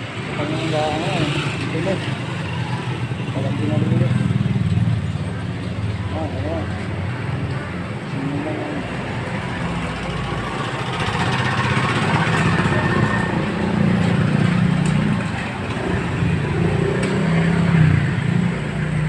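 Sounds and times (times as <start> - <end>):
small engine running: 9.8 - 14.8.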